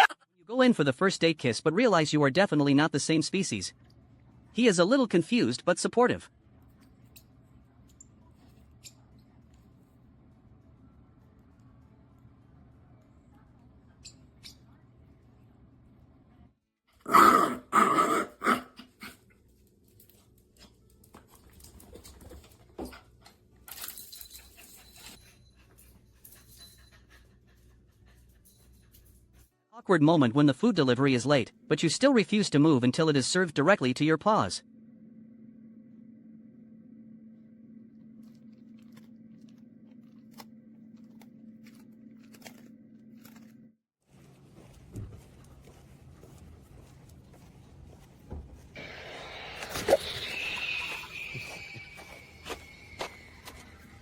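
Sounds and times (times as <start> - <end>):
dog barking: 17.1 - 19.2
steady low hum: 34.5 - 54.0
dog chewing crunchy food: 38.1 - 43.6.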